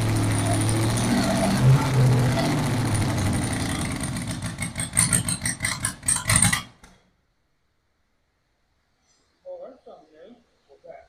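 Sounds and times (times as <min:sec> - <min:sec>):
engine cranking and sputtering: 0:00.0 - 0:07.0.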